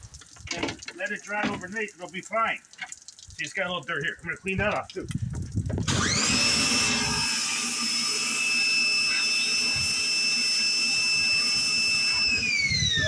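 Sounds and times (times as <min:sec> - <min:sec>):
electric cleaning tool whining: 0:05.9 - 0:13.0.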